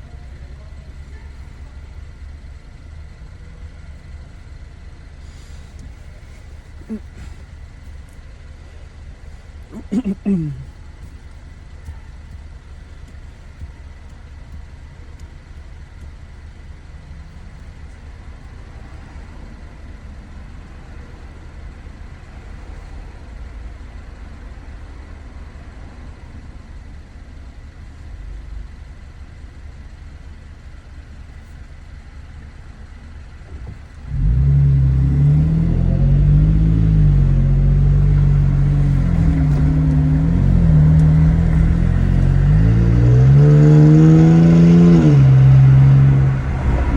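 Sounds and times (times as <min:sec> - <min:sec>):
truck exhaust rumbling and revving: 0:00.0 - 0:23.1, 0:33.3 - 0:46.9.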